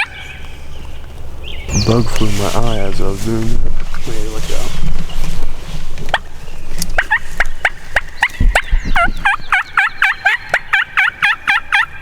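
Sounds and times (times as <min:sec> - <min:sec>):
turkey call yelping: 0:00.0 - 0:00.5, 0:07.0 - 0:12.0.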